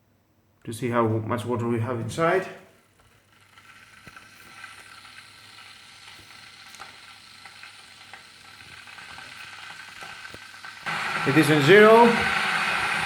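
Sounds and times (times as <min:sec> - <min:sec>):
kettle element hissing: 0:02.7 - 0:13.0
faint ticks and crackles: 0:02.8 - 0:10.6.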